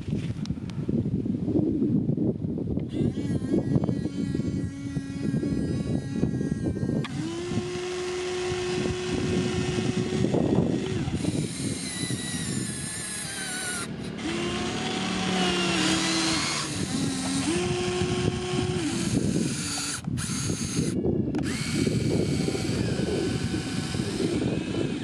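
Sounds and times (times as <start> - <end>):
high sliding whines: 2.9 - 25.0
machine whine: 2.9 - 25.0
farm machine engine rumbling: 7.1 - 20.2.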